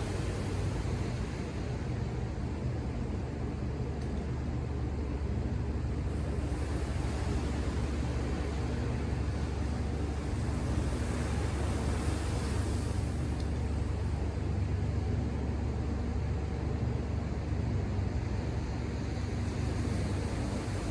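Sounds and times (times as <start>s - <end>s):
ocean surf rumble: 0.0s - 20.9s
hiss of wave washing in: 6.4s - 14.1s.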